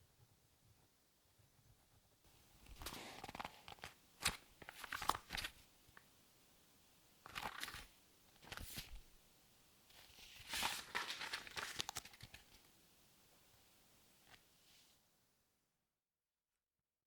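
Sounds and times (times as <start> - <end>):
paper crinkling and rustling: 2.6 - 5.6, 7.2 - 9.1, 9.9 - 12.7.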